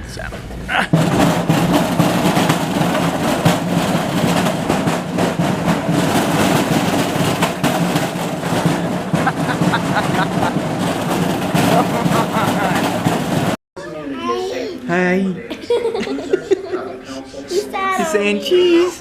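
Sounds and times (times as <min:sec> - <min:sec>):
cart wheels rattling and clattering: 0:00.9 - 0:13.6.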